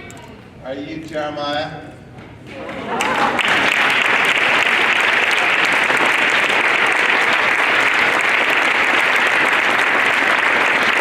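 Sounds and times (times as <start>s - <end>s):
children applauding: 3.0s - 11.0s.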